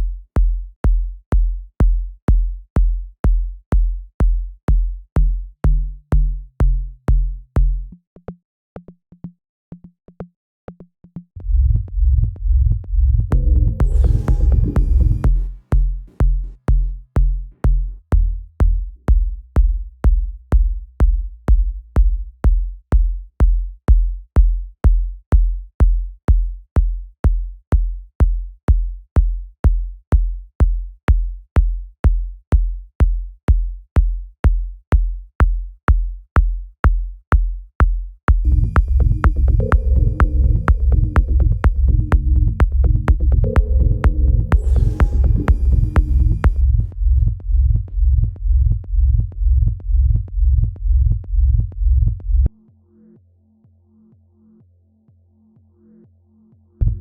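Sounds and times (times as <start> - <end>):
drum machine kick and bass: 0.0 - 52.6
electronic music mix: 13.3 - 17.5, 38.5 - 47.4.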